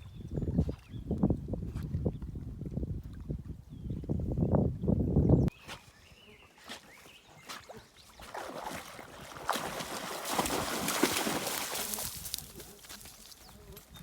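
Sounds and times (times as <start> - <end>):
water splashing and sloshing: 6.6 - 12.6.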